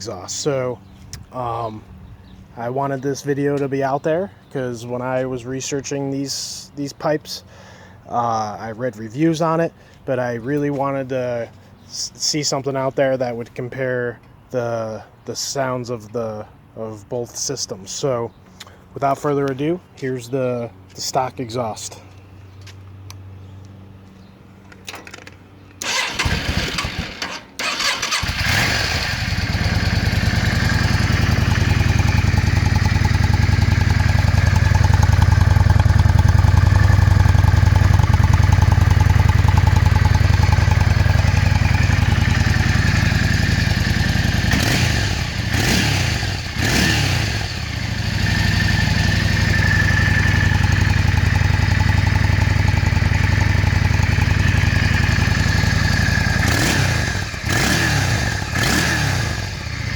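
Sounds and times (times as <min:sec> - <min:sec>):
motorcycle engine idling and revving: 0:22.5 - 0:59.9
motorcycle starter cranking: 0:24.9 - 0:47.9.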